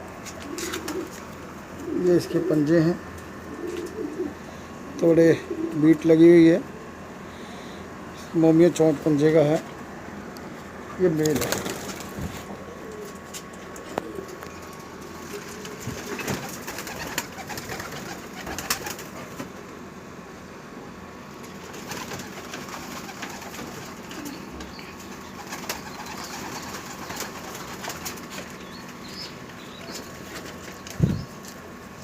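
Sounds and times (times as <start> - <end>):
pigeons cooing: 0.0 - 8.1, 11.3 - 19.4, 21.4 - 31.9
clicks and rustles of birds moving: 0.2 - 1.9, 11.2 - 19.6, 21.4 - 31.7.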